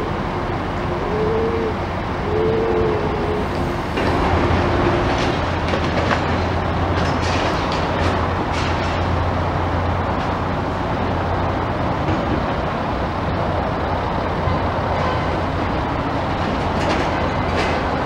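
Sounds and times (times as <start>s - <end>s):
moving vehicle rumble: 0.0s - 18.0s.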